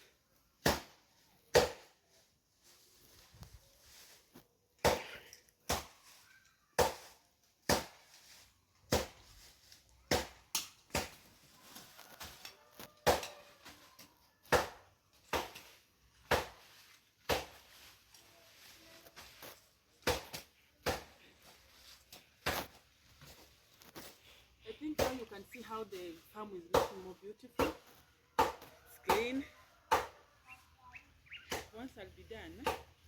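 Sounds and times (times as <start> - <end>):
hoe chopping into soil: 0.6 - 1.9, 6.8 - 9.5, 10.1 - 11.3, 13.0 - 13.4, 14.5 - 17.8, 20.0 - 21.2, 22.2 - 24.2, 31.5 - 31.9, 32.6 - 33.0.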